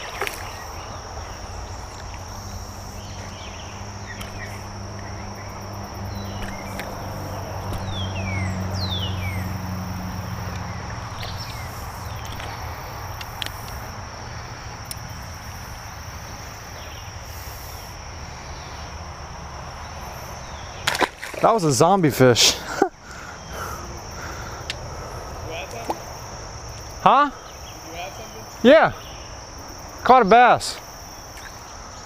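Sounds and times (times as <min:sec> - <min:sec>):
low hum: 0:00.0 - 0:17.1
high-pitched insect drone: 0:00.1 - 0:20.7.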